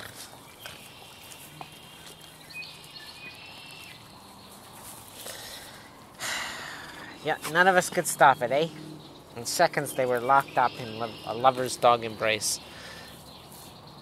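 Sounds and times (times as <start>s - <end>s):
faint high bird calls: 0.0s - 14.0s.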